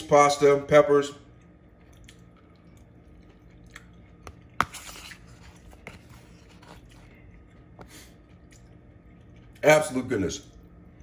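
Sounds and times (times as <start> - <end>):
person chewing pasta: 1.4 - 9.6.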